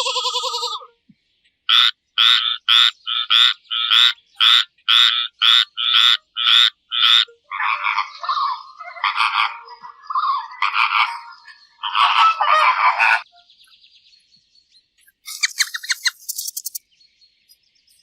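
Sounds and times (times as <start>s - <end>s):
frog croaking: 1.7s - 13.3s
animal call: 1.7s - 13.4s.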